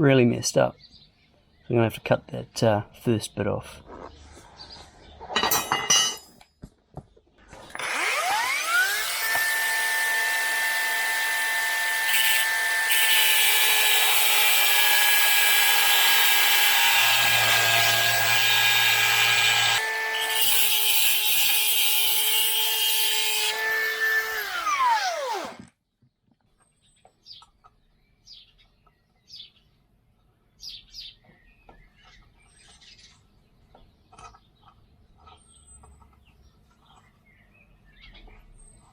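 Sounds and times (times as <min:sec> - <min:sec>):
angle grinder cutting steel: 0:07.6 - 0:25.7.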